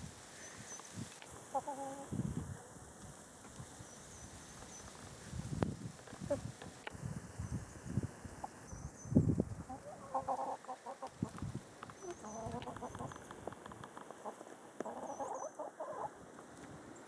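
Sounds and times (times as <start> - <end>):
hens clucking: 1.4 - 2.1, 9.7 - 11.4, 12.0 - 16.2.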